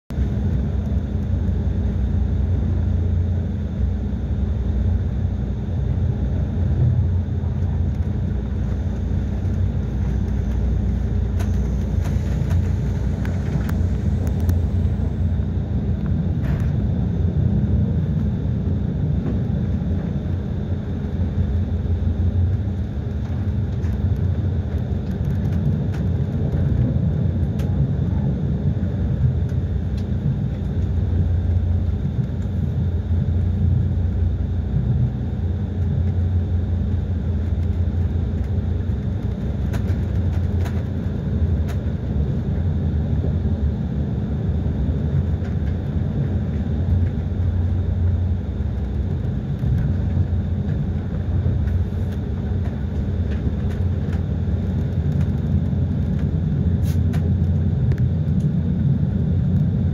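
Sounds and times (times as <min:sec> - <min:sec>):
train rumble inside carriage: 0:00.1 - 0:59.9
faint high whine: 0:00.2 - 0:25.1.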